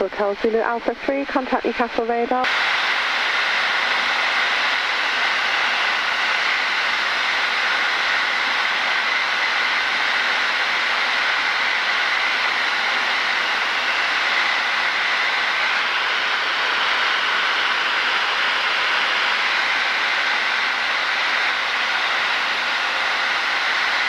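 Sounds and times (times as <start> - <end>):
aircraft cockpit engine hiss: 0.1 - 24.0.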